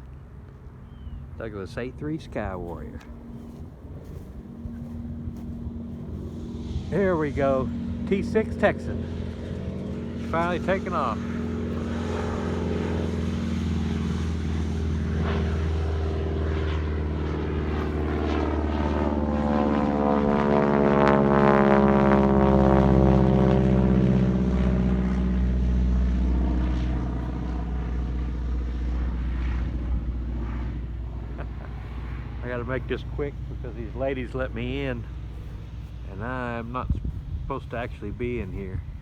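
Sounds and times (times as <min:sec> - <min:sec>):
propeller plane taking off: 0:00.0 - 0:39.0.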